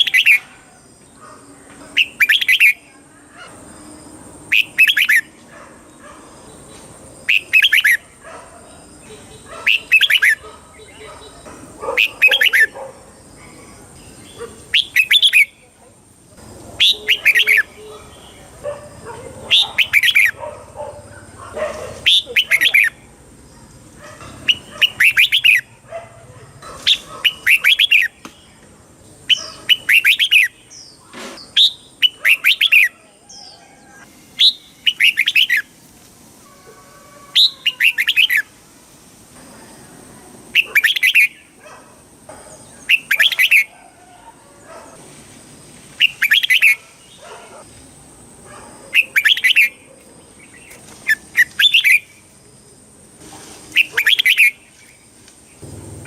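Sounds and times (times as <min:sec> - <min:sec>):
bulbul singing whistled phrases: 0:02.0 - 0:02.9, 0:04.5 - 0:05.3, 0:07.3 - 0:08.0, 0:09.0 - 0:12.8, 0:14.7 - 0:15.6, 0:16.8 - 0:17.8, 0:19.5 - 0:20.4, 0:24.5 - 0:25.7, 0:29.3 - 0:30.6, 0:34.4 - 0:35.7, 0:40.6 - 0:41.5, 0:46.0 - 0:46.8.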